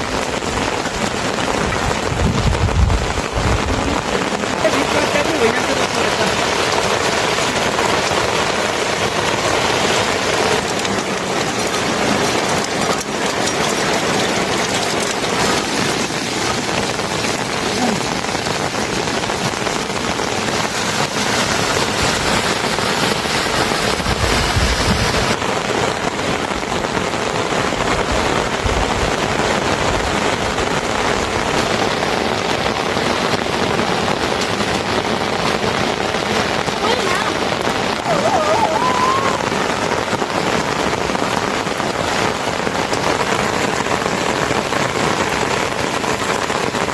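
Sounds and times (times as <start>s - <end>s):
heavy rain pattering: 0.0s - 46.9s.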